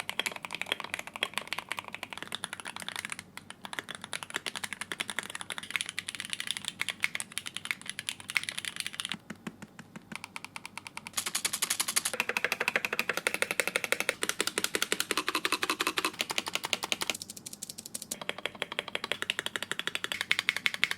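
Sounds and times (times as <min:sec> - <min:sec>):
fast typing on mechanical keyboards: 0:00.0 - 0:20.9.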